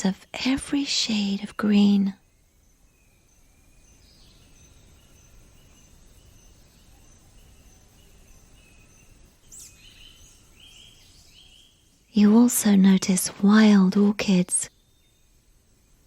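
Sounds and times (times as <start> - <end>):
high insect chirps: 0.0 - 16.0
soft background hiss: 0.0 - 16.0
bird calls: 3.4 - 11.8.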